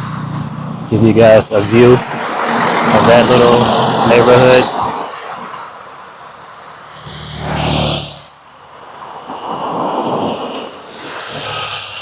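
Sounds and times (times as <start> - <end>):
vehicle passing close: 0.0 - 6.0, 6.8 - 8.3
street traffic: 0.0 - 12.0.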